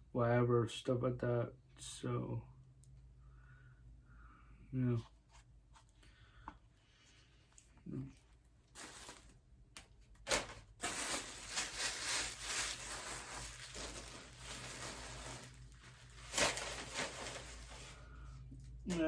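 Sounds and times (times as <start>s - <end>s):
packaging rustling and crinkling: 8.2s - 18.2s.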